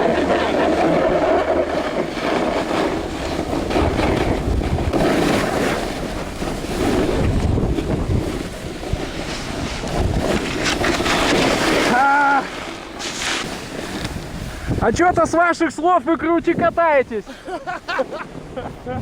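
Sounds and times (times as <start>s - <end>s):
skis rushing through powder snow: 0.0s - 19.0s
wind buffeting microphone: 0.0s - 19.0s.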